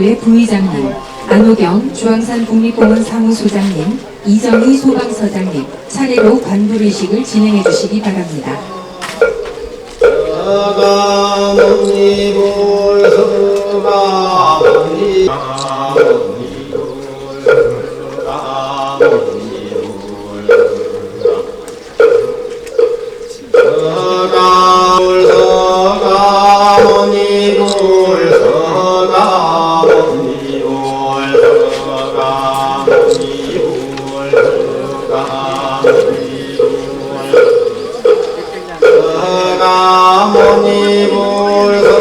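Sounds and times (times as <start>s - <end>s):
man chanting in long melodic notes: 0.0s - 42.0s
short knocks: 9.0s - 42.0s.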